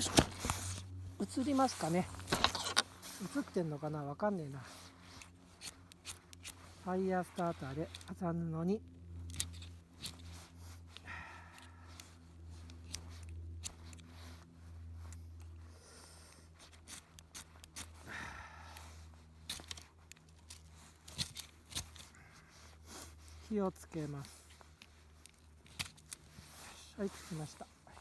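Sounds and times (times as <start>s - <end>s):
fire-starter rod scraping: 0.0s - 8.2s.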